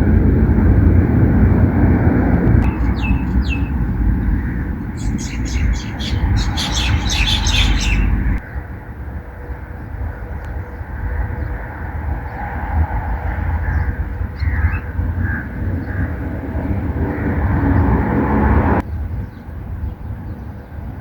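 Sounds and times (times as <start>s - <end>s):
low rumble: 0.0s - 9.0s
faint bird chirps: 2.7s - 8.4s.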